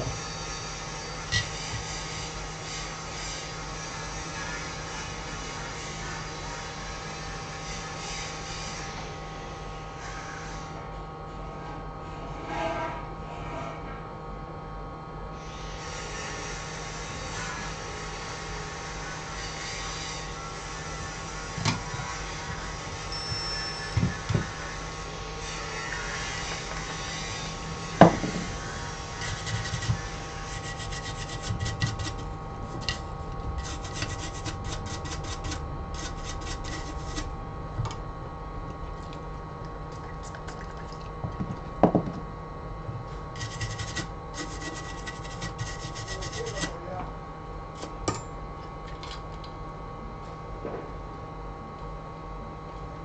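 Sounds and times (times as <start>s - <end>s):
rapid scratching strokes: 28.6s - 37.3s, 43.4s - 46.8s.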